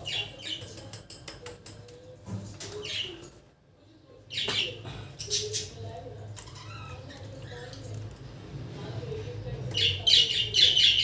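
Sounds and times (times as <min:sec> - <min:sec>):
budgies chirping: 0:09.4 - 0:11.0.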